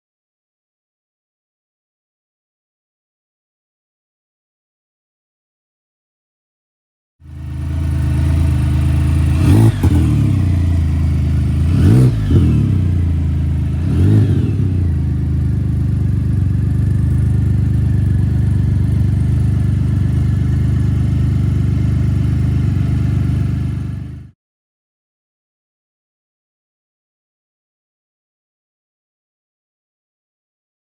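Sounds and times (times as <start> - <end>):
motorcycle engine idling and revving: 7.2 - 24.4.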